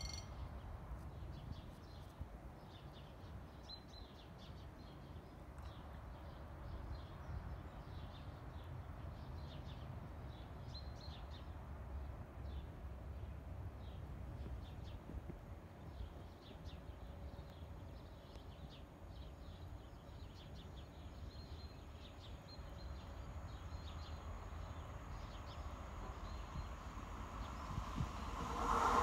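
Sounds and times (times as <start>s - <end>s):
small birds chirping: 12.4s - 28.0s.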